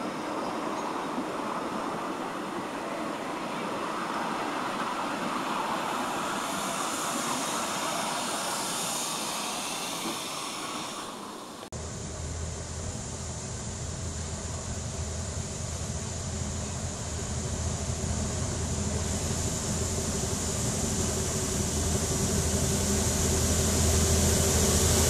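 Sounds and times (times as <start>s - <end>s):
train hiss: 0.0s - 25.0s
train rumbling: 0.0s - 25.0s.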